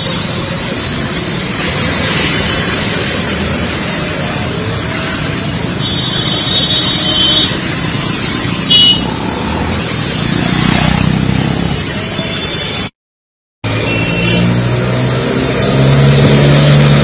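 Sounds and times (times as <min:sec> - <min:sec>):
traffic engines running: 0:00.0 - 0:12.9, 0:13.6 - 0:17.0
car horns honking: 0:05.8 - 0:07.6, 0:08.7 - 0:09.2, 0:13.8 - 0:14.6.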